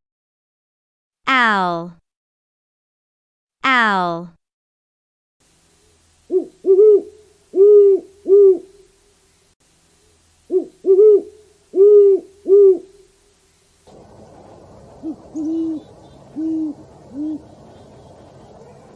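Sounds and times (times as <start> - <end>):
owl hooting: 6.3 - 8.9, 10.5 - 13.2, 13.9 - 18.9.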